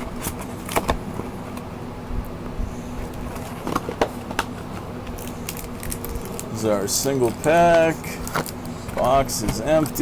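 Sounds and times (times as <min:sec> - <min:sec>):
steady low hum: 0:00.0 - 0:10.0
cardboard and wrapper rustling: 0:03.0 - 0:10.0.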